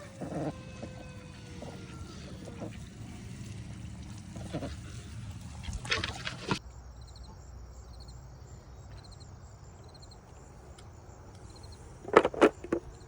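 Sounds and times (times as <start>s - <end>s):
low outdoor rumble: 0.0s - 6.6s
insects chirping in trills: 0.0s - 13.0s.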